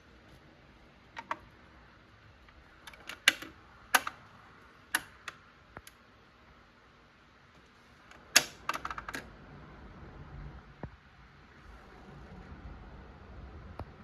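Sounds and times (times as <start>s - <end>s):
turntable clicks and knocks: 2.8s - 4.2s.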